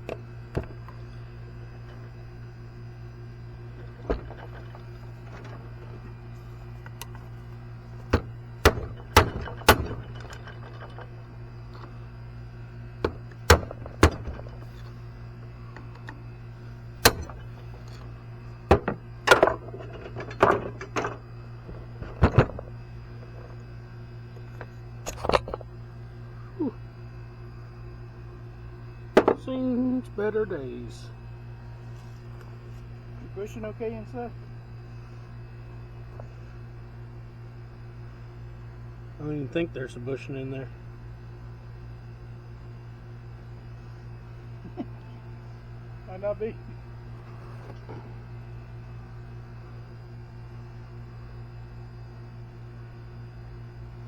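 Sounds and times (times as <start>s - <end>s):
steady low hum: 0.0s - 54.0s
hand tools knocking on metal part: 8.0s - 11.1s, 13.0s - 14.8s, 17.0s - 18.1s.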